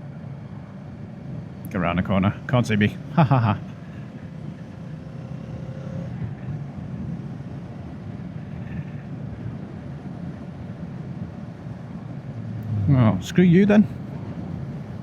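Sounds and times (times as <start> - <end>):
wind and road noise: 0.0 - 15.0
motorcycle engine running: 1.7 - 8.7.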